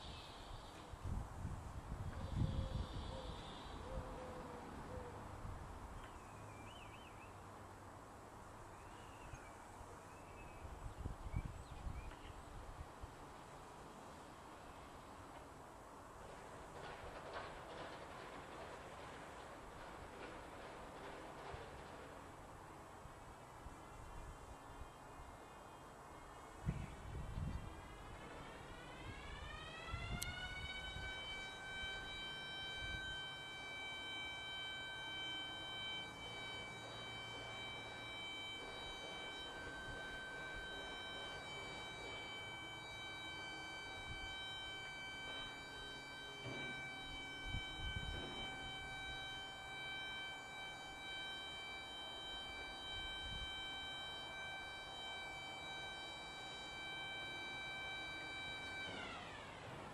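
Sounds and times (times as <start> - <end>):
faint birdsong chirps: 0.0 - 1.1, 2.0 - 7.8, 8.4 - 15.4, 22.5 - 30.8
outdoor background noise: 0.0 - 59.9
warning siren winding up: 26.9 - 59.9.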